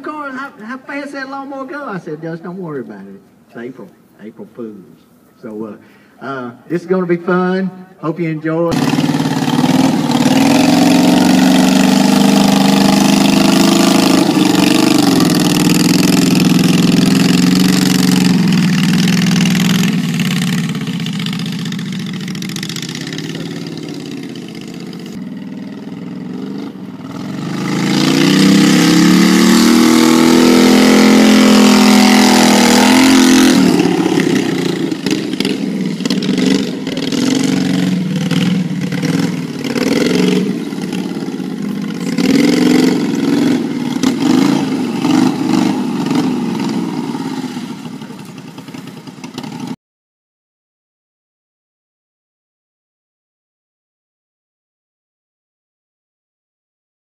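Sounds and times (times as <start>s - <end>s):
mower engine running and revving: 8.7s - 49.8s.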